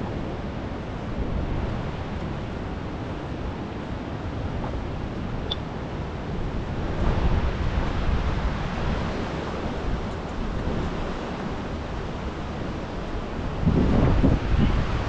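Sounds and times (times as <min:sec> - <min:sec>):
fast-moving floodwater: 0:00.0 - 0:15.0
wind buffeting microphone: 0:00.0 - 0:15.0.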